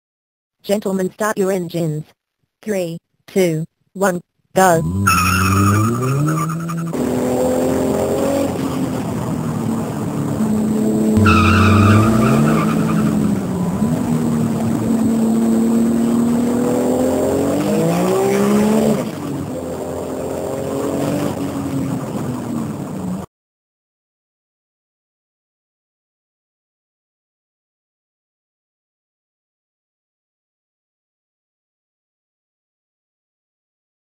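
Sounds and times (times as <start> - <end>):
tyre squeal: 4.8 - 7.0, 11.2 - 14.4
race car engines revving: 4.8 - 23.3.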